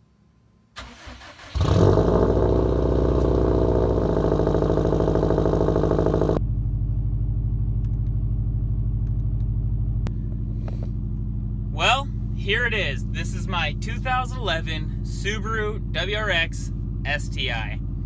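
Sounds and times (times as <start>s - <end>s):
car engine fast cold idle: 0.8s - 6.4s
car engine starting: 0.8s - 18.0s.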